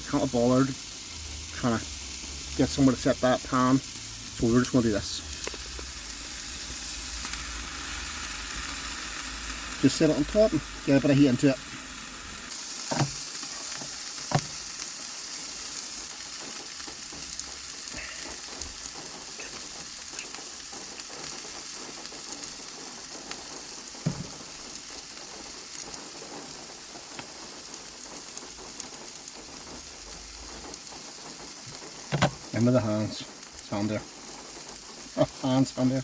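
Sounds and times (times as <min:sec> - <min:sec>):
steak sizzling in a frying pan: 0:00.0 - 0:36.0
sharp knocks: 0:24.0 - 0:24.5.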